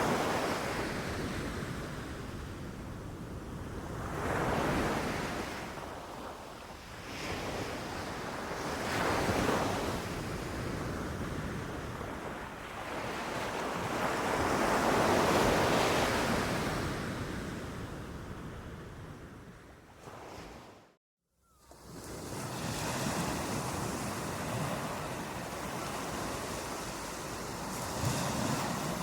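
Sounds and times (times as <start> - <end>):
ocean waves breaking: 21.7 - 29.0.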